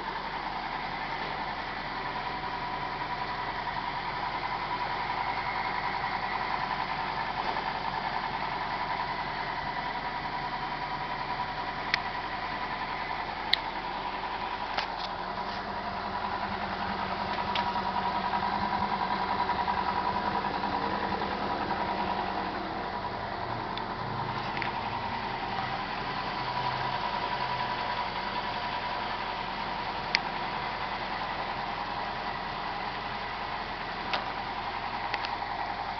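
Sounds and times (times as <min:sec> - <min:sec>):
engine idling: 0:00.0 - 0:35.9.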